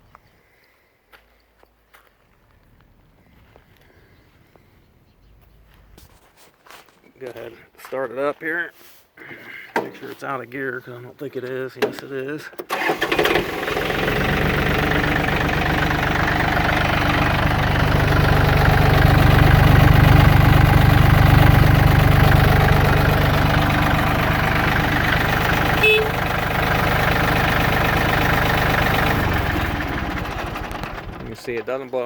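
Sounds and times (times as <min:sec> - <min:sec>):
diesel tractor engine idling: 0:12.7 - 0:32.0
short beep: 0:25.7 - 0:26.2.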